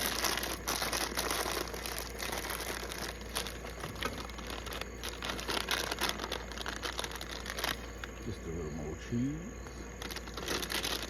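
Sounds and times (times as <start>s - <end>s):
plastic chip bag crinkling: 0.0s - 8.8s, 9.6s - 11.0s.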